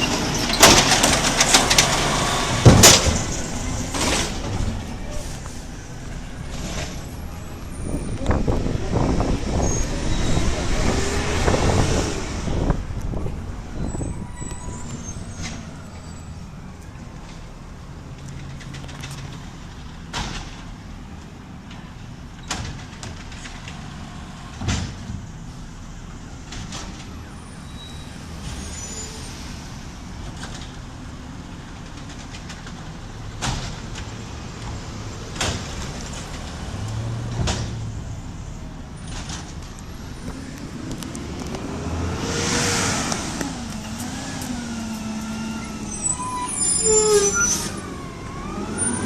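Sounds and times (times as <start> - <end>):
garbage truck engine: 0.0 - 17.8.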